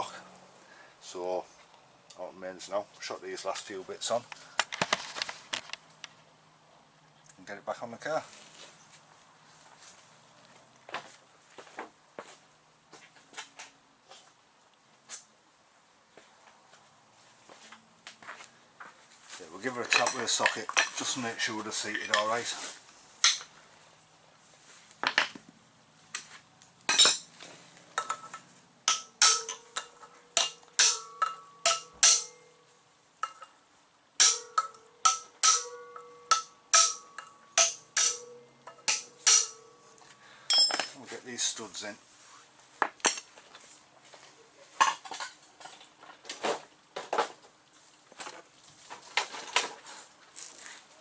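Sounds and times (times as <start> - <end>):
metallic clinks of tools: 34.2 - 41.0.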